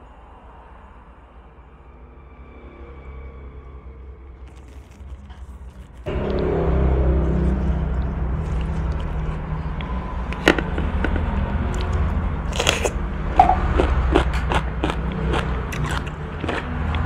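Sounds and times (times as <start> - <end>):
chewing crisp cucumber: 4.4 - 6.7, 7.3 - 17.0
mouth clicks: 11.7 - 17.0.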